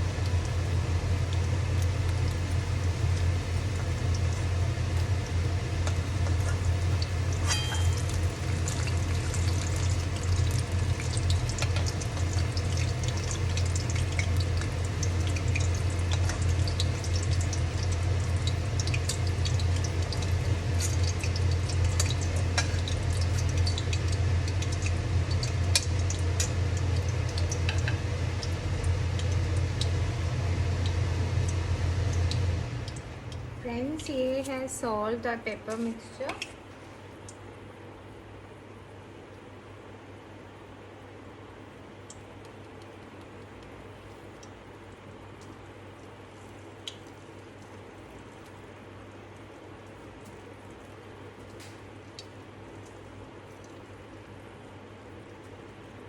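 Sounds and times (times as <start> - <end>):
loud steady low hum: 0.0 - 36.2
food frying in hot oil: 0.0 - 37.6, 40.4 - 56.0.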